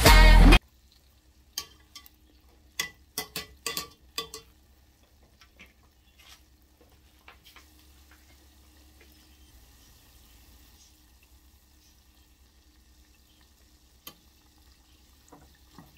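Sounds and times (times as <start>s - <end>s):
utensil tapping on a pan: 1.6s - 2.1s, 2.8s - 4.5s.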